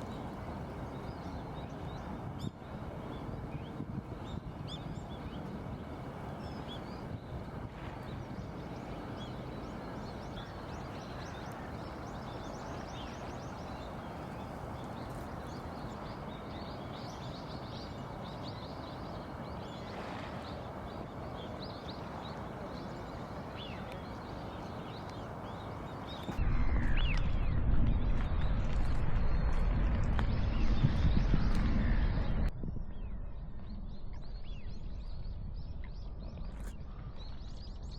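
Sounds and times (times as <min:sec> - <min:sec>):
small birds chirping: 0:06.3 - 0:26.4
low background rumble: 0:23.6 - 0:37.7
loud low rumble: 0:26.3 - 0:35.6.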